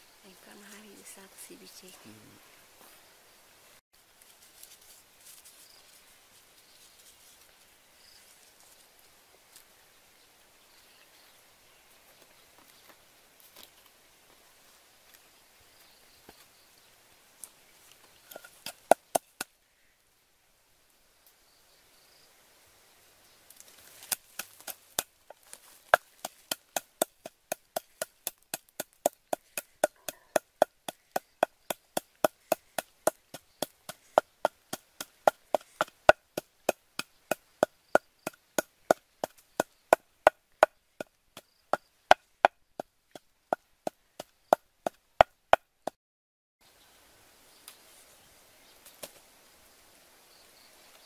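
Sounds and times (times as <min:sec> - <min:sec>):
rustling: 0:04.0 - 0:09.8, 0:23.4 - 0:39.6
pestle pounding in mortar: 0:18.6 - 0:19.5, 0:26.0 - 0:41.2.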